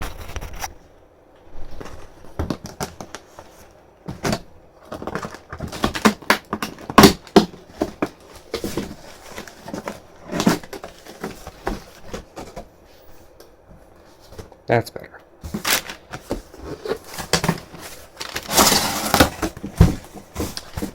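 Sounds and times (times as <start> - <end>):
cardboard box knocks and scrapes: 15.4 - 20.9.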